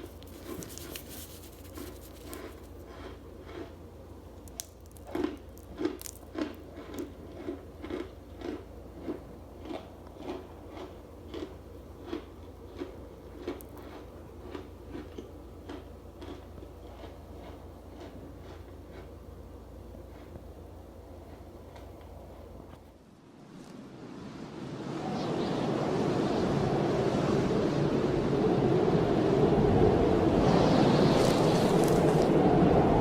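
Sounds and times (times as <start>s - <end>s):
crunchy chewing: 0.0s - 19.4s, 20.0s - 20.5s, 31.1s - 32.3s.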